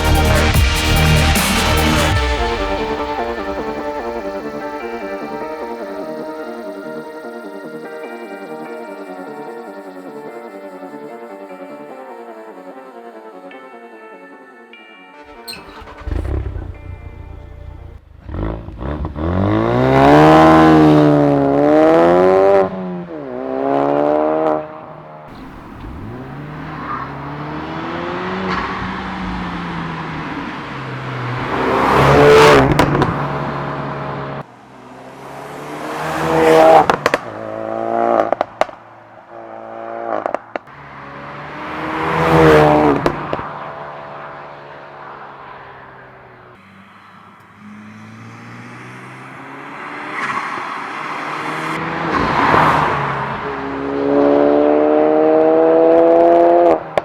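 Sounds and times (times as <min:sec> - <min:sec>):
car engine revving hard: 0:15.6 - 0:38.4, 0:39.4 - 0:43.5, 0:47.5 - 0:57.0.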